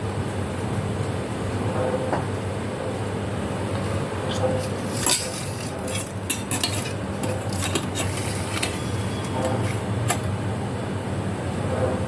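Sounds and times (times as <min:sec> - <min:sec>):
steady low hum: 0:00.0 - 0:12.0
metal utensils clinking on pot: 0:04.6 - 0:10.3.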